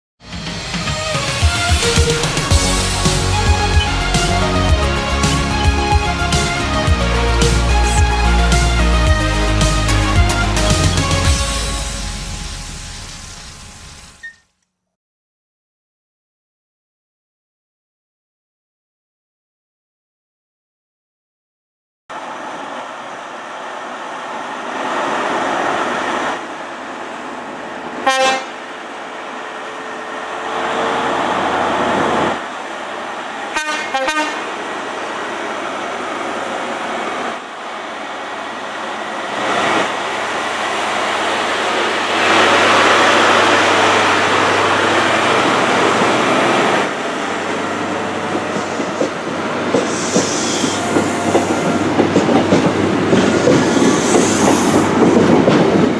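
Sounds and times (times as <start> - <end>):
train rumbling past: 0.2 - 14.2, 22.1 - 55.9
wheels clicking over rail joints: 48.2 - 55.9.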